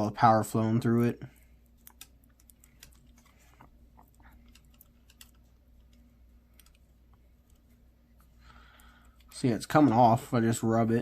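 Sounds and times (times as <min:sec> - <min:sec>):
faint steady hum: 0:00.0 - 0:11.0
fingers clicking and scratching parts: 0:01.8 - 0:06.8.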